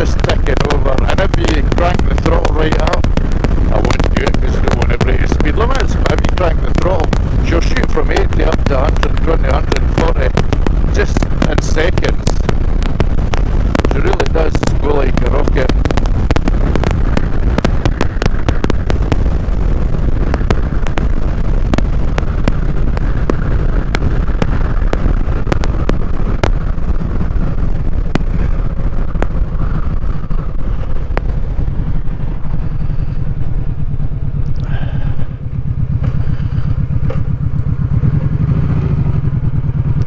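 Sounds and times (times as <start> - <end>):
motorcycle engine running loud: 0.0 - 40.0
wind buffeting microphone: 0.0 - 40.0.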